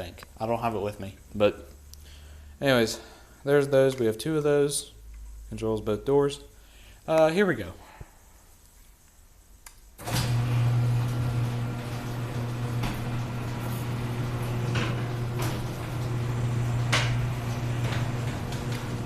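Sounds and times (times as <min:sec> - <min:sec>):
garage door opener clicks: 0:10.0 - 0:19.0
garage door opener motor humming: 0:10.0 - 0:19.0
garage door rolling: 0:10.0 - 0:19.0.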